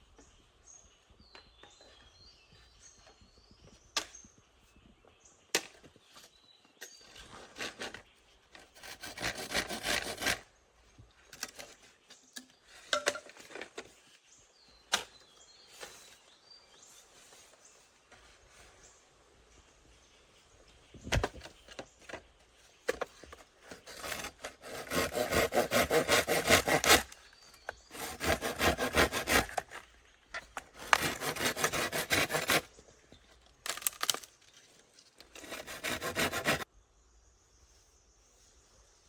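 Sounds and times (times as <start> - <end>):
wood being sawn: 8.6 - 10.4, 23.6 - 29.9, 30.6 - 32.7, 35.3 - 36.7.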